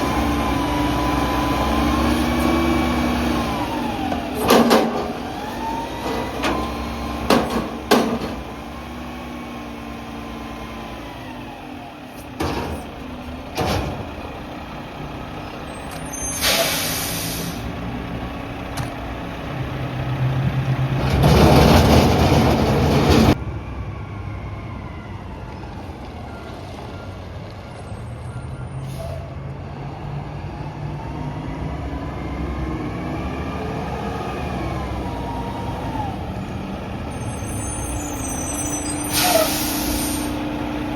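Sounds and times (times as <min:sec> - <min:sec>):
garbage truck engine running: 0:00.0 - 0:23.8
air brake hiss: 0:16.1 - 0:17.7, 0:28.8 - 0:29.4, 0:37.7 - 0:40.4.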